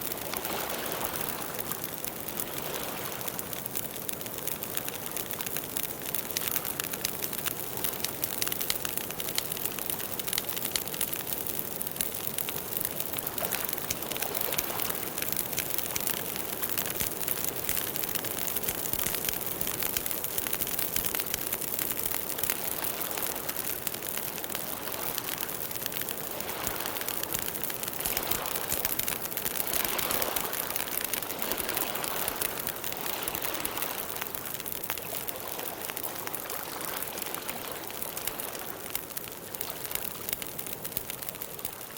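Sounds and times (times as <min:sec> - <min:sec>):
campfire crackling and popping: 0:00.0 - 0:41.9.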